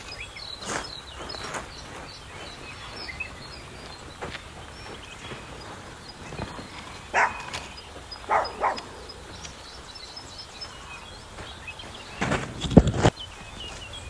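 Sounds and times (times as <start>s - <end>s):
faint birds chirping: 0.0s - 14.0s
dog barking: 7.1s - 9.0s.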